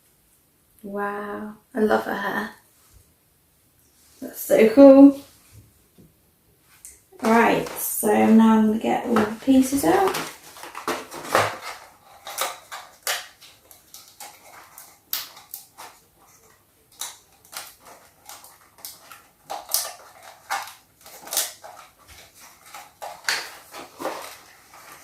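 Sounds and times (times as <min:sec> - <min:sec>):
plastic packaging crinkling: 0:06.9 - 0:25.0.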